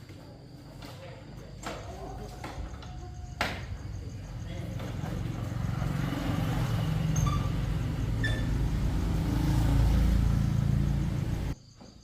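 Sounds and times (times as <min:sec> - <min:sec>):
vehicle engine running: 0:03.9 - 0:11.6.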